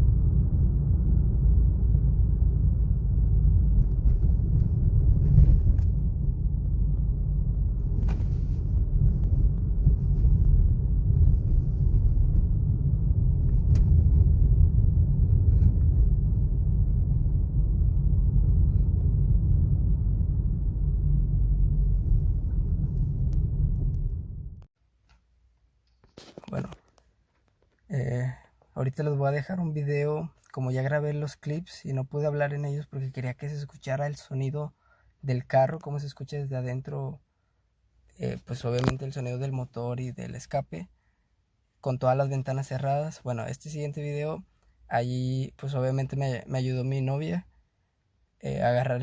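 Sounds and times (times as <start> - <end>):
car road and engine rumble: 0.0 - 24.7.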